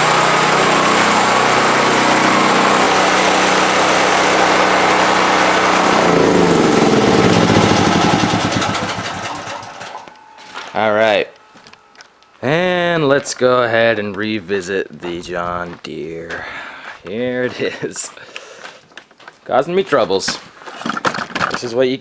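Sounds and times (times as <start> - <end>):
small engine running: 0.0 - 12.7.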